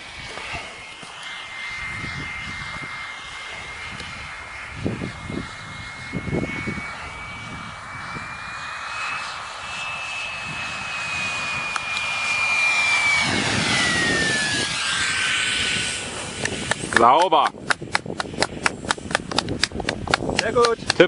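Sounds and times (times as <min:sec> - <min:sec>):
model airplane motor whine: 0:00.0 - 0:21.0.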